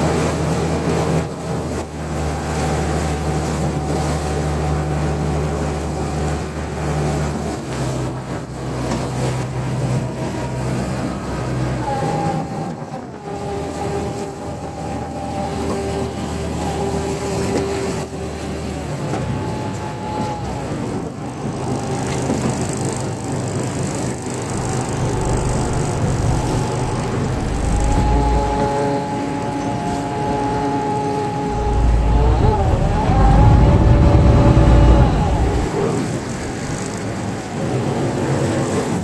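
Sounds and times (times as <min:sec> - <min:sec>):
boat engine humming: 0:00.0 - 0:39.0
broad rushing noise: 0:21.1 - 0:38.4.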